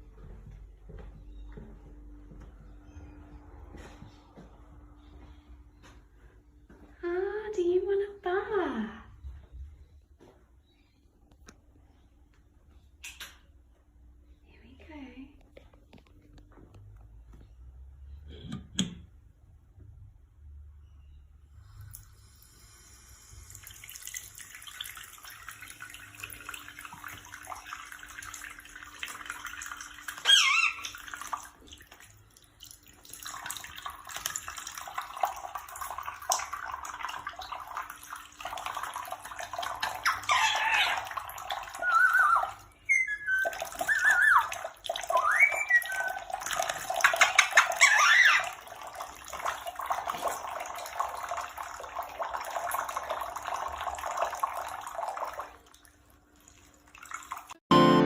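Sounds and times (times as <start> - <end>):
running water: 21.9 - 57.6.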